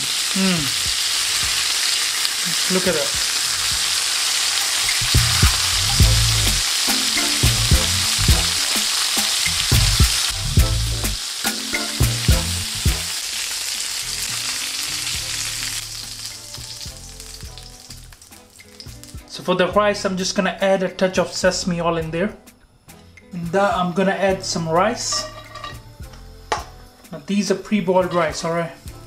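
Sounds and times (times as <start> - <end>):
chicken sizzling in oil: 0.0 - 19.4.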